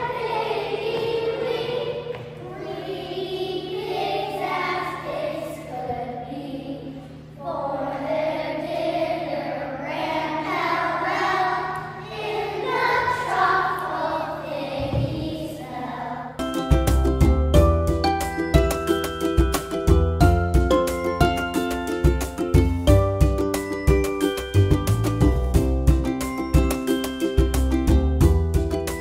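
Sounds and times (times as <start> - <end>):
children singing: 0.0 - 16.4
instrumental music with plucked notes: 16.4 - 29.0.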